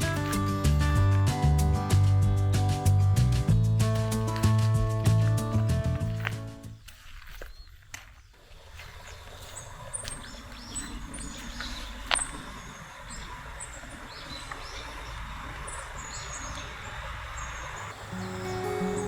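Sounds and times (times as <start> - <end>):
steady low rumble: 0.0 - 6.8
songbirds calling: 0.0 - 19.0.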